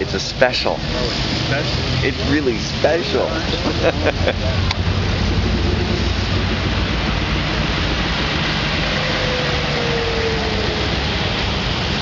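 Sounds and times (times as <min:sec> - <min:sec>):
car engines running at low speed: 0:00.0 - 0:12.0
constant hiss: 0:00.0 - 0:12.0
faint falling tone: 0:04.6 - 0:12.0.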